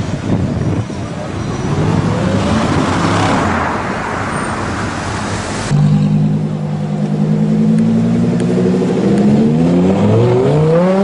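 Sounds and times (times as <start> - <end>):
street traffic: 0.0 - 11.0
car accelerating past: 5.6 - 11.0.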